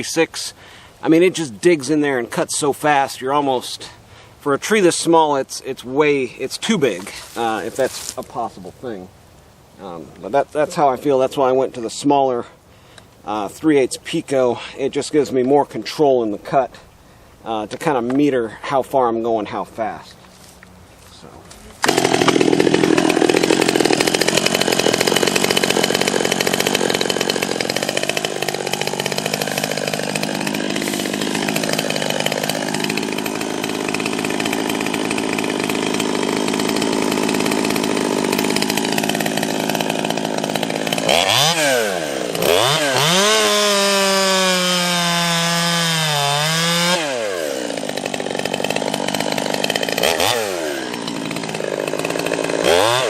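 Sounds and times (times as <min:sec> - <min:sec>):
chainsaw cutting into a tree: 0:21.5 - 0:53.0.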